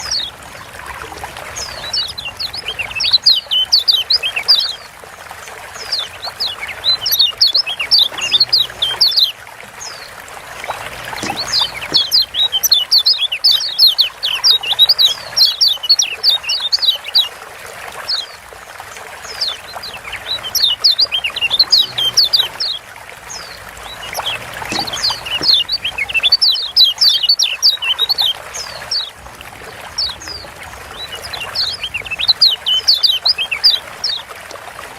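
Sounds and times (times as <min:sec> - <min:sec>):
bird chirping rapidly: 0:01.6 - 0:04.9, 0:05.8 - 0:10.0, 0:11.0 - 0:17.3, 0:19.3 - 0:29.1, 0:30.0 - 0:34.2.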